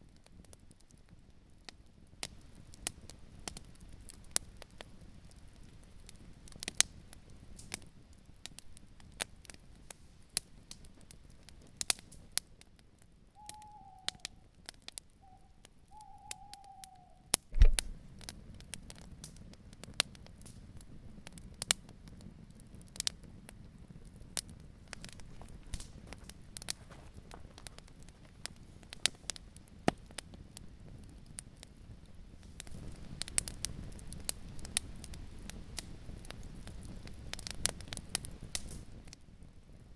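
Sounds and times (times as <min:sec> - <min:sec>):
campfire crackling and popping: 0:00.0 - 0:39.9
owl hooting: 0:13.4 - 0:14.6, 0:15.2 - 0:17.4
loud thump: 0:17.6 - 0:18.0.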